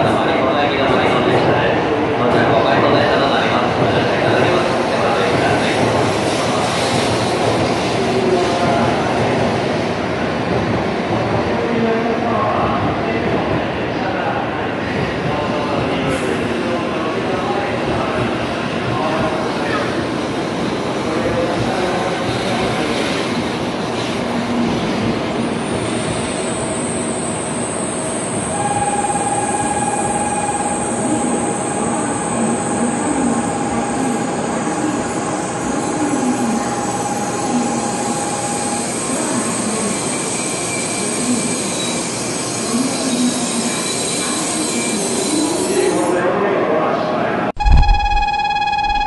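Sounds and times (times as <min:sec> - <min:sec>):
steady mid-pitched tone: 0:47.6 - 0:49.0
thin high whine: 0:47.6 - 0:49.0.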